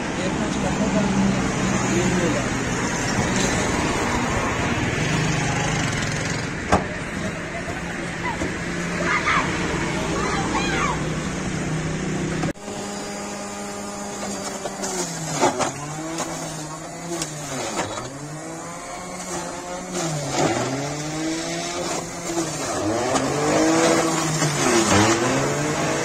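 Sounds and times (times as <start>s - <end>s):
juicer motor running under load: 4.9s - 10.9s, 11.8s - 26.0s.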